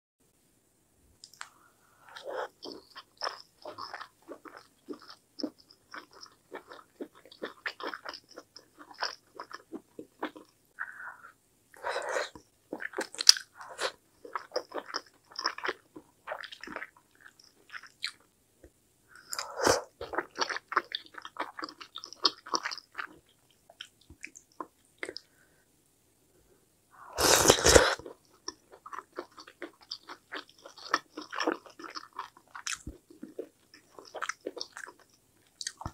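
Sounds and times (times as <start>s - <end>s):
mouth clicks and smacks: 1.2s - 1.6s.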